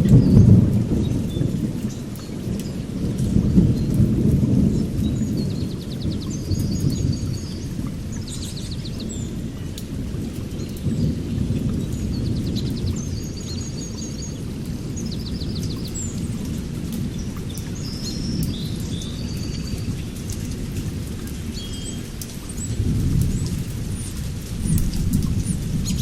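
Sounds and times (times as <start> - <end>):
rain pattering: 0.0 - 26.0
thunder rumbling: 0.0 - 26.0
birds chirping and trilling: 17.1 - 20.2.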